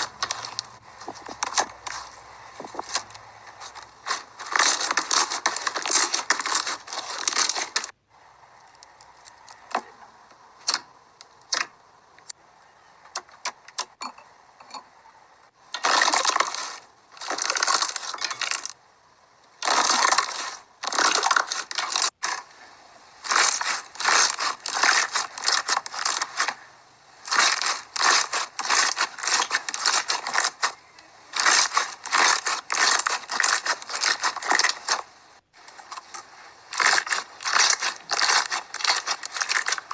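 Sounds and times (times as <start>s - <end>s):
slime crackling and clicking: 27.3s - 35.0s, 35.8s - 39.9s.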